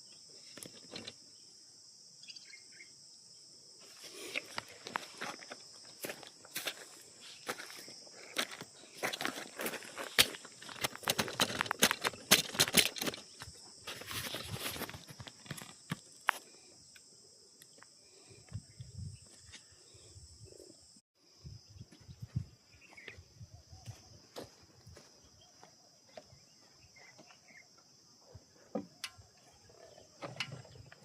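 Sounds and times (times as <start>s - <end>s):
sharp clicks and rustles: 10.0s - 16.4s.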